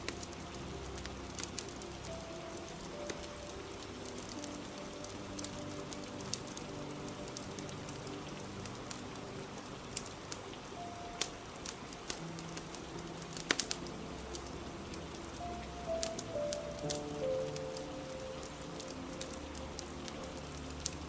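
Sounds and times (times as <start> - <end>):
fire crackling and popping: 0.0 - 21.0
soft music of held notes: 0.0 - 21.0
steady rain: 0.0 - 21.0.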